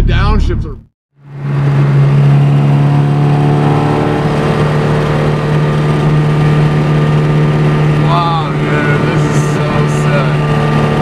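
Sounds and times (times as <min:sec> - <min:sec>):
car engine droning at cruise: 0:01.2 - 0:11.0.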